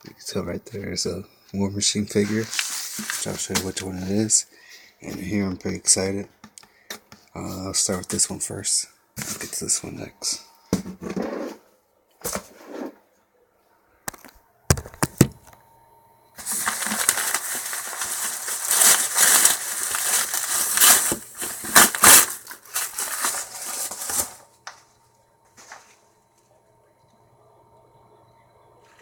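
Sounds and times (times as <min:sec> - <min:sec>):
packaging rustling and crinkling: 0:02.1 - 0:04.3, 0:16.4 - 0:24.6
knocks on package: 0:14.7 - 0:15.5.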